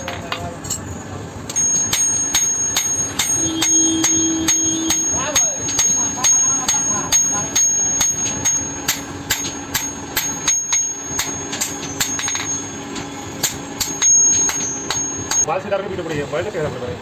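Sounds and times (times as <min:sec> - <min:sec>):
steady hum: 0:00.0 - 0:15.5
hammer ringing on metal: 0:01.5 - 0:15.5.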